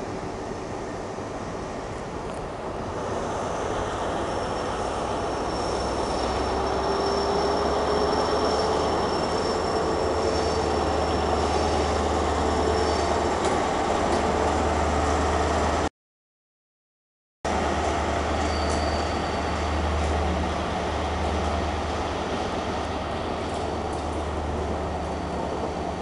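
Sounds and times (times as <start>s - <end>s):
train rumbling on track: 0.0s - 15.9s, 17.5s - 26.0s
high wheel squeal: 3.5s - 13.4s, 18.3s - 19.8s, 25.0s - 26.0s.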